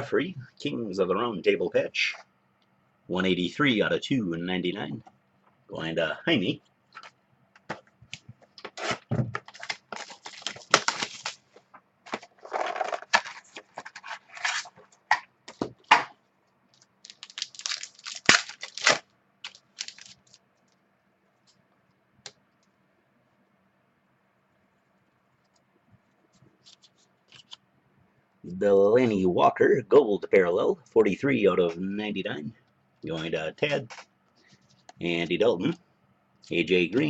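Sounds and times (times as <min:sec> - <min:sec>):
wrapper tearing and crumpling: 0:08.8 - 0:11.4, 0:17.0 - 0:20.4
cards handled: 0:26.4 - 0:27.6.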